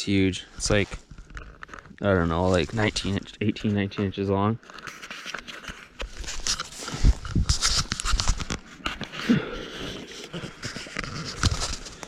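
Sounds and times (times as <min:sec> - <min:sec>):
footsteps through dry underbrush: 0:00.5 - 0:03.4, 0:06.0 - 0:08.8
twigs crackling and snapping: 0:00.6 - 0:03.7.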